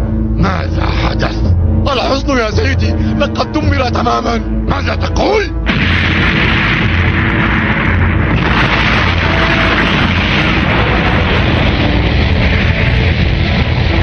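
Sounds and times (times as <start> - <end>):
cartoon explosion blast and rumble: 5.7 - 14.0.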